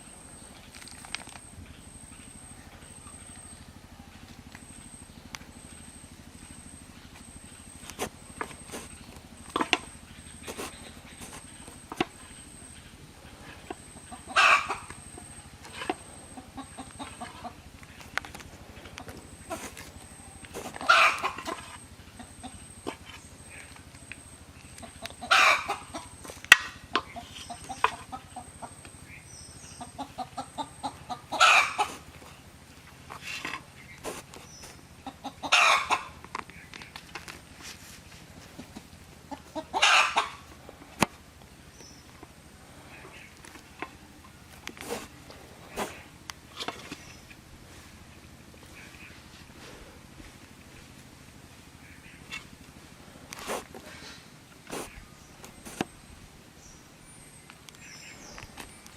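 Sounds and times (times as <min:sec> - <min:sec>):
chickens squawking: 0:00.0 - 0:37.0, 0:37.6 - 0:56.0.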